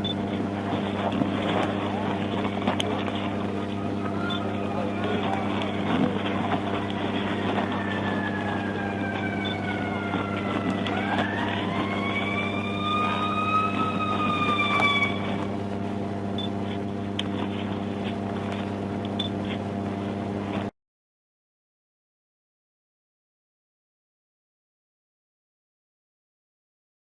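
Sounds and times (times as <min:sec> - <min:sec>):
steady low hum: 0:00.0 - 0:20.7
emergency vehicle siren wailing: 0:00.6 - 0:15.6.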